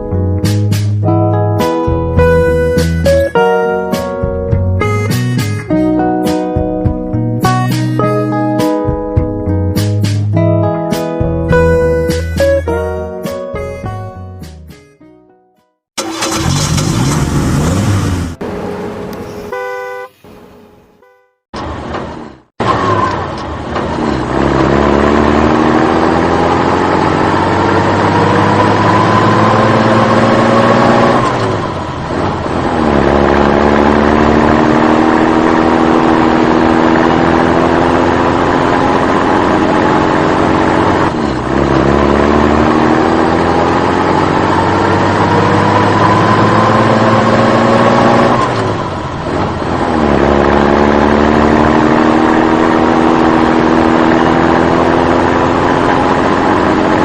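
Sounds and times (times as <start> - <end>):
vehicle engine accelerating: 16.0 - 19.5, 21.6 - 57.0.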